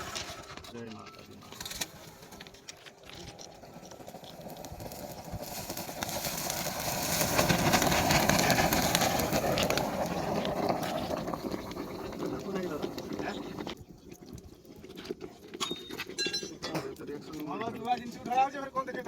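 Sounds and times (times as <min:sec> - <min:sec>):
rail welding hissing: 0:04.0 - 0:13.8.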